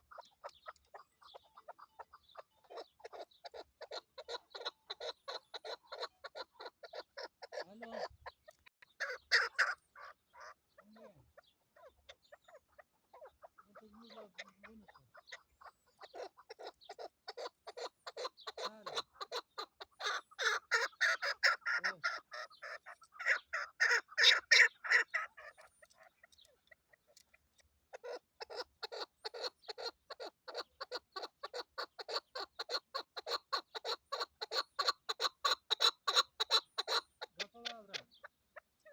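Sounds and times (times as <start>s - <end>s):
partridge clucking: 13.8s - 38.9s.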